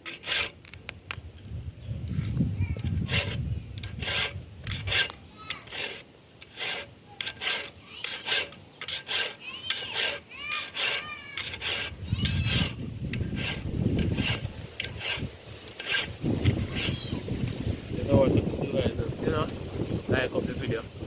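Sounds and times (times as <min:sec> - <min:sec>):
file rasping on saw teeth: 0:00.0 - 0:00.6, 0:02.9 - 0:17.1.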